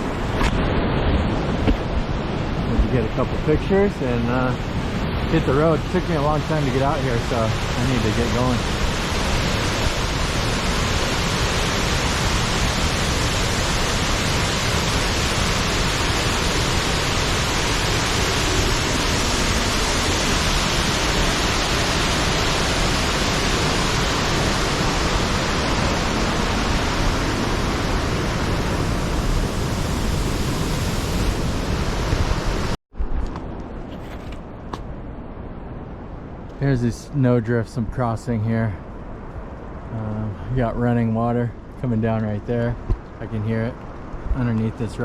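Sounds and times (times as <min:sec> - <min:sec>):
waterfall rushing: 0:02.5 - 0:32.8.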